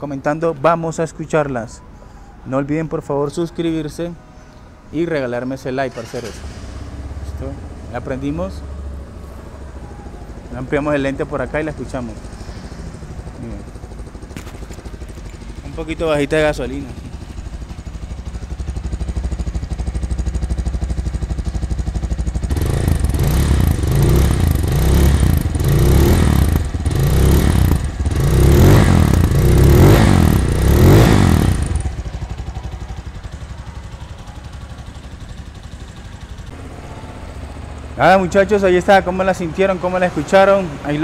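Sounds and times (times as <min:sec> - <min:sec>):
motorcycle engine idling and revving: 0:05.8 - 0:41.0.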